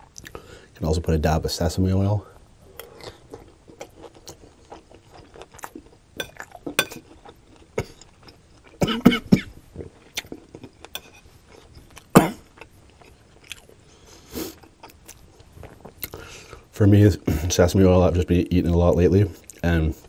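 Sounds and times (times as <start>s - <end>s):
person chewing wet crunches: 2.7s - 16.3s.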